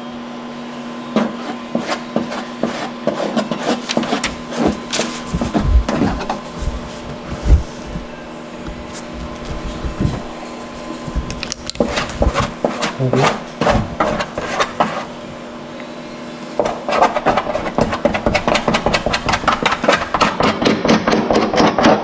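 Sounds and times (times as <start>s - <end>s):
stick stirring resin in container: 8.7s - 15.1s.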